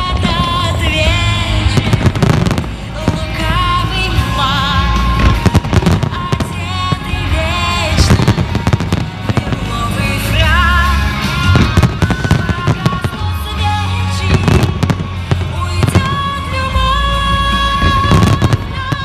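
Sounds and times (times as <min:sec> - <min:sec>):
fireworks bursting and crackling: 0:00.0 - 0:19.0
loud music with vibrato melody: 0:00.0 - 0:19.0.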